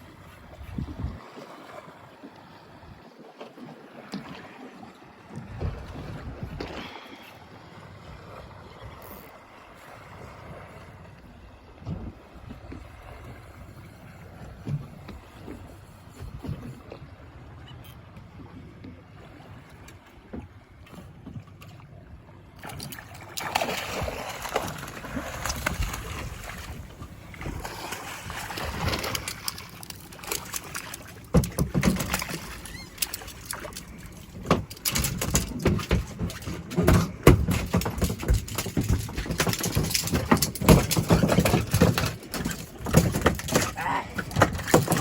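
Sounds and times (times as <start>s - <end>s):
water splashing against boat: 0.0s - 45.0s
knocks and thumps on boat: 5.2s - 7.2s, 11.7s - 17.1s, 19.7s - 21.9s, 22.6s - 45.0s.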